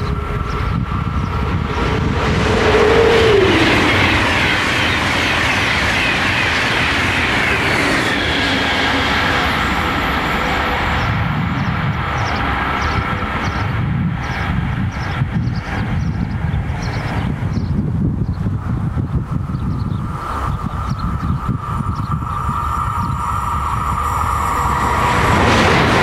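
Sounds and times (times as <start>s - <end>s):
high-speed train rushing past: 0.0s - 26.0s
whines sliding downward: 0.1s - 11.1s, 20.0s - 26.0s.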